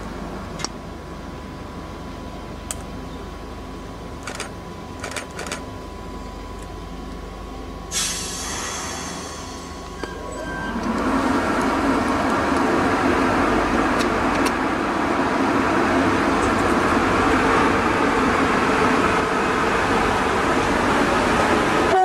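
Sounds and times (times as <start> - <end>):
locomotive running noise: 0.0 - 22.0
train wheels rumbling on rails: 7.9 - 22.0.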